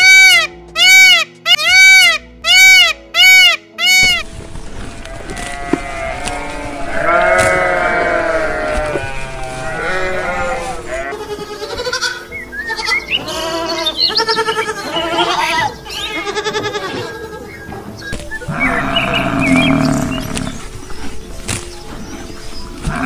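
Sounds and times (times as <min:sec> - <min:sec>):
sheep bleating: 0:04.9 - 0:17.8, 0:18.4 - 0:20.6
goats bleating: 0:04.9 - 0:20.7, 0:22.8 - 0:23.0.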